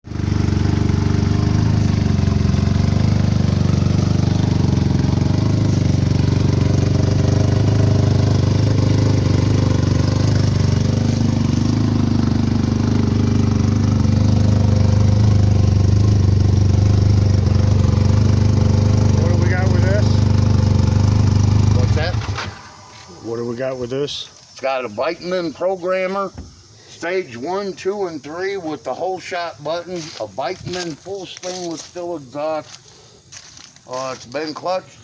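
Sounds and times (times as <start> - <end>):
snowmobile engine idling: 0.0 - 23.9.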